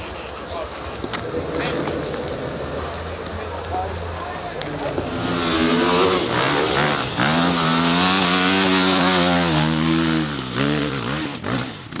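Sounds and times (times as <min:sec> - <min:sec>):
dirt bike engine revving: 0:04.9 - 0:12.0.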